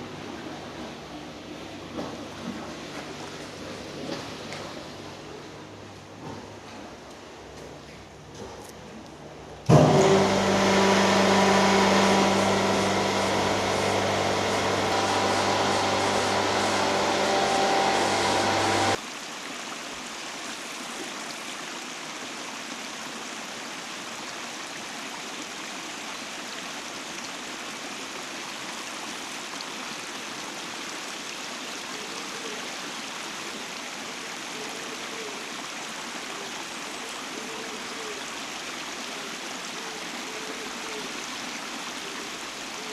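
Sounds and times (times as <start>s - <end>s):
mechanical hum: 0.0s - 19.0s
stream rushing: 9.7s - 31.9s
water rushing: 9.7s - 32.0s.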